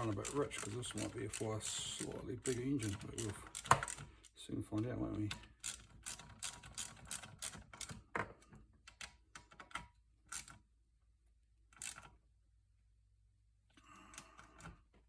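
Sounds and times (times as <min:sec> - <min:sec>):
spanner clicking on metal parts: 0:00.0 - 0:04.1, 0:05.3 - 0:08.0.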